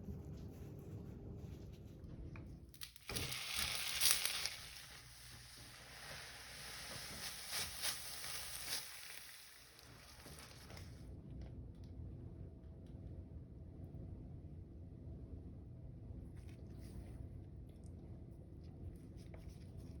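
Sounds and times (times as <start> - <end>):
food sizzling in a hot pan: 2.8 - 10.6.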